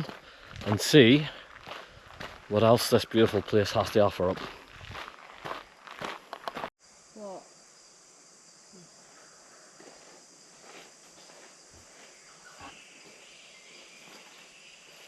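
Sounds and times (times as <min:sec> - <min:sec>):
insects droning: 0:00.0 - 0:15.0
footsteps on a track: 0:01.5 - 0:02.5, 0:04.0 - 0:06.7
low steady insect note: 0:06.8 - 0:15.0.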